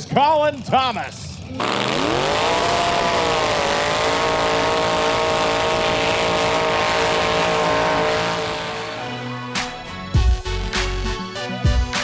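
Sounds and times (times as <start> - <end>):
engine at high revs: 1.4 - 10.1
tyres spinning on pavement: 1.6 - 10.1.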